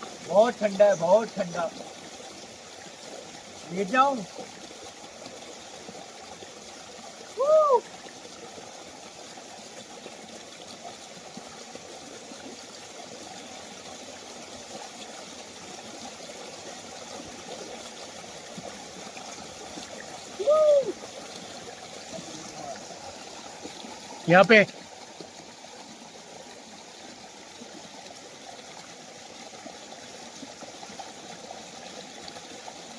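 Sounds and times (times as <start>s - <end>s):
waterfall pouring into pool: 0.0s - 32.9s
person shouting woo: 7.4s - 7.9s, 20.4s - 21.0s.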